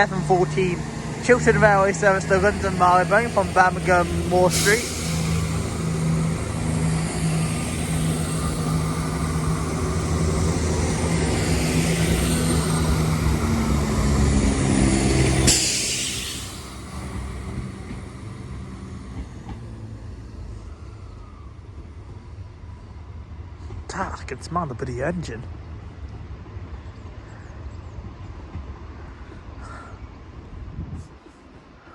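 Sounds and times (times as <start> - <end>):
train diesel engines running: 0.0 - 31.9
loud air hiss: 2.7 - 9.8, 15.2 - 17.5.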